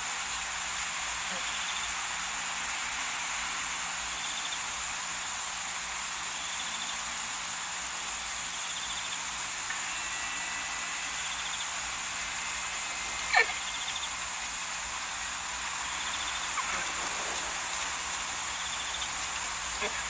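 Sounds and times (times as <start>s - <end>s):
steady hiss: 0.0s - 20.0s
thin steady tone: 8.5s - 20.0s.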